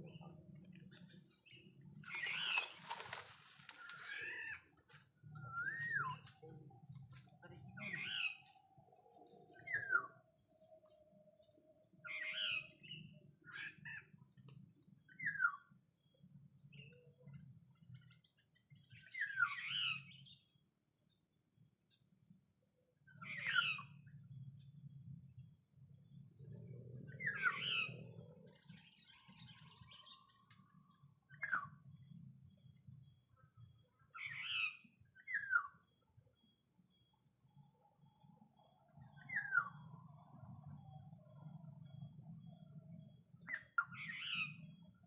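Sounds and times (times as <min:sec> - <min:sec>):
faint low rumble: 0:24.0 - 0:34.0.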